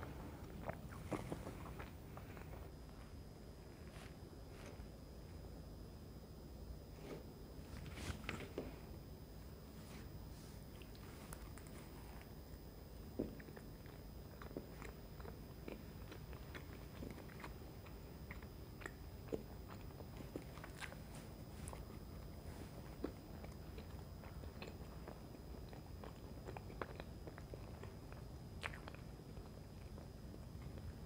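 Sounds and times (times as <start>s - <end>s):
person chewing with smacks: 0.0s - 3.0s, 9.6s - 31.0s.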